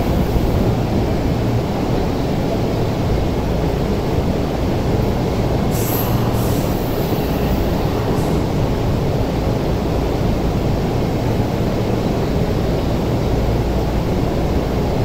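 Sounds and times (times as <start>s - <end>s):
electric train low rumble: 0.0s - 15.0s
compressed air hiss: 5.7s - 8.6s.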